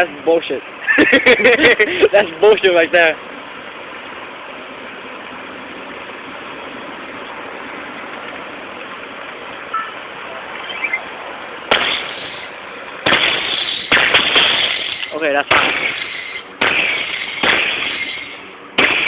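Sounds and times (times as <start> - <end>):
steady background noise: 0.0 - 19.0
fireworks crackling: 11.6 - 19.0
fireworks bangs: 11.7 - 19.0.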